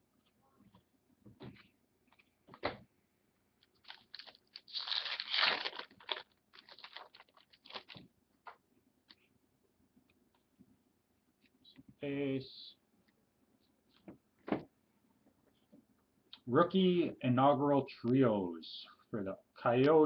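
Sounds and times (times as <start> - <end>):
card packaging rustling and scraping: 3.8 - 8.0.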